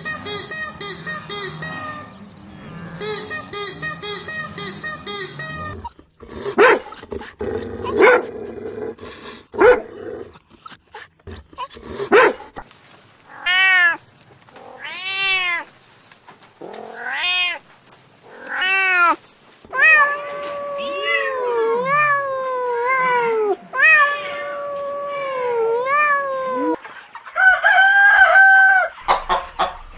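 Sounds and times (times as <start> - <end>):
cat meowing: 1.6 - 6.1, 13.3 - 14.0, 14.6 - 15.7, 16.6 - 17.7, 18.3 - 26.8.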